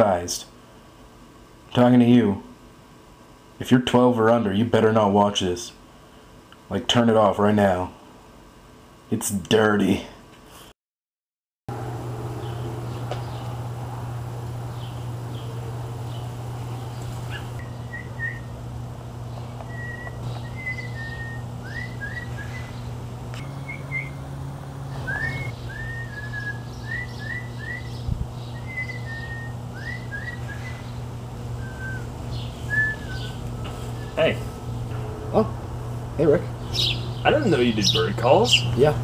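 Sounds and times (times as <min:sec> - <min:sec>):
steady low hum: 0:11.7 - 0:39.0
man whistling bird calls: 0:17.6 - 0:18.5, 0:19.7 - 0:22.8, 0:23.4 - 0:24.2, 0:24.9 - 0:30.9, 0:31.6 - 0:34.2.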